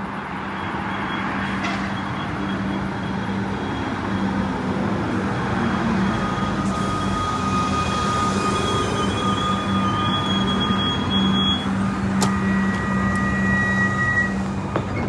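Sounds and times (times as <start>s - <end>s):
electric train rumbling: 0.0s - 15.0s
thin whine: 5.2s - 15.0s.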